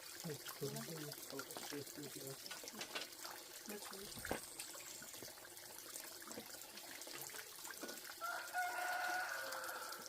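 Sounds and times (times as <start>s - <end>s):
rooster crowing: 8.2s - 10.0s.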